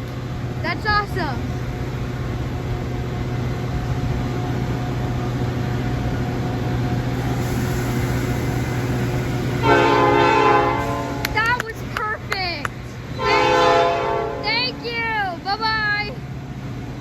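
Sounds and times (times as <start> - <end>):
diesel locomotive engine running: 0.0 - 17.0
train air horn blast: 7.2 - 11.6, 13.1 - 15.0.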